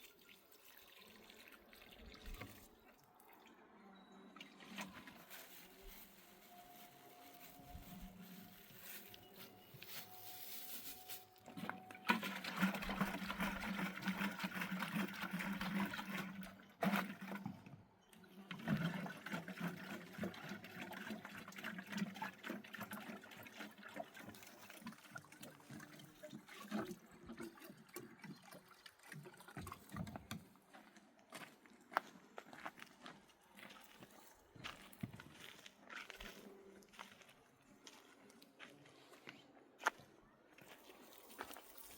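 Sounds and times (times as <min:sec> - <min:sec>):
water pouring and splashing: 0:00.0 - 0:03.0, 0:04.4 - 0:06.5, 0:11.6 - 0:17.6, 0:18.5 - 0:30.5, 0:41.1 - 0:41.9.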